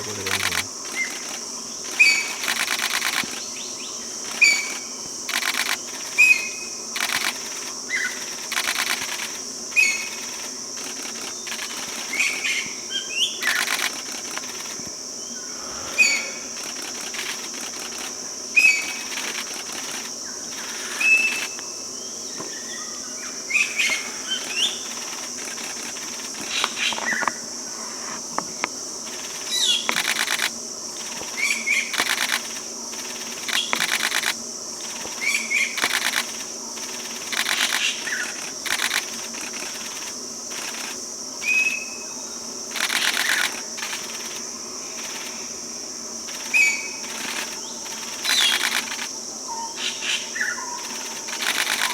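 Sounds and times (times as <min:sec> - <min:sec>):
dry rattling bird calls: 0:00.0 - 0:21.6, 0:23.5 - 0:27.4, 0:29.1 - 0:41.9, 0:42.7 - 0:45.4, 0:46.3 - 0:51.9
high insect drone: 0:00.0 - 0:51.9.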